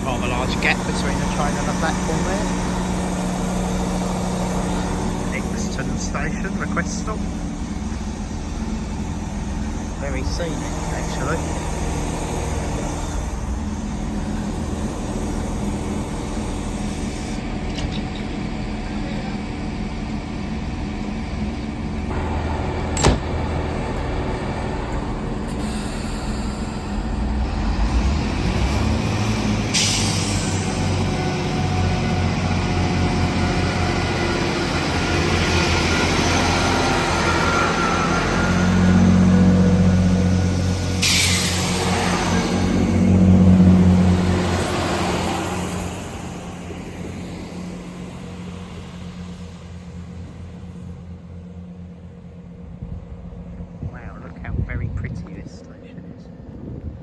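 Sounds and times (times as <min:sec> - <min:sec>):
diesel train engine humming: 0:00.0 - 0:57.0
sharp knock: 0:23.0 - 0:23.4.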